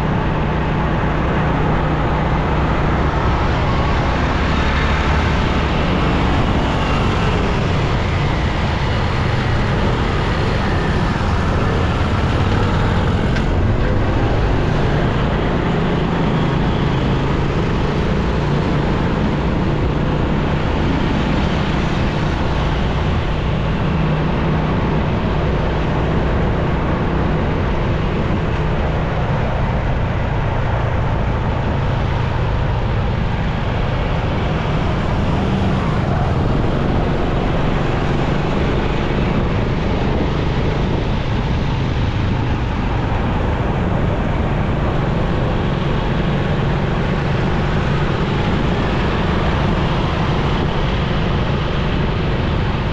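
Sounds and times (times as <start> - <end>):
motorcycle engine running: 0.0 - 24.6
road and traffic noise: 0.0 - 52.9.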